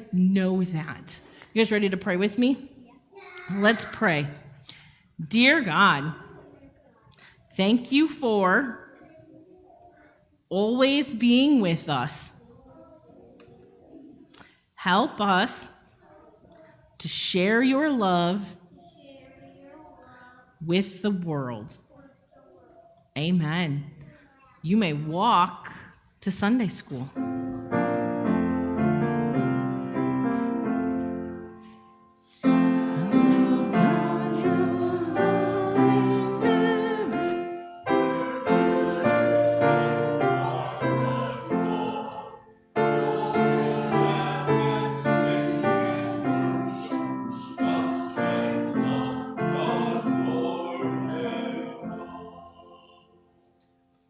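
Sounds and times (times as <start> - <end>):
piano music: 27.2 - 53.1.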